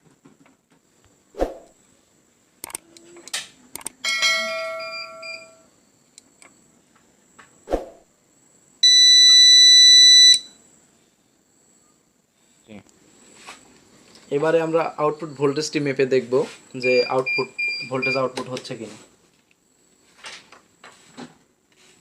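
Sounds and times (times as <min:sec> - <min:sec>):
faint high whine: 0:01.0 - 0:20.2
clicks: 0:02.6 - 0:04.0
loud steady electronic beep: 0:04.7 - 0:05.7, 0:08.8 - 0:10.5, 0:16.8 - 0:18.3.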